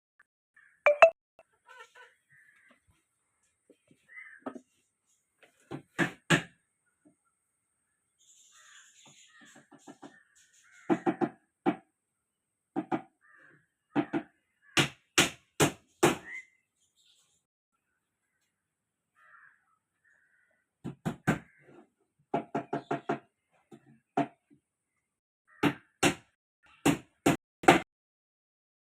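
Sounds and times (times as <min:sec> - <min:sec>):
harsh bird calls: 0:08.2 - 0:11.4, 0:15.9 - 0:17.4.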